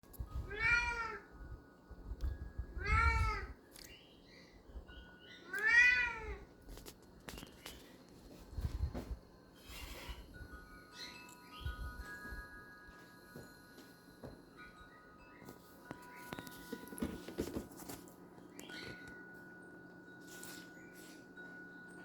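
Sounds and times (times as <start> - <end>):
cat meowing: 0.5 - 1.2, 5.5 - 6.4.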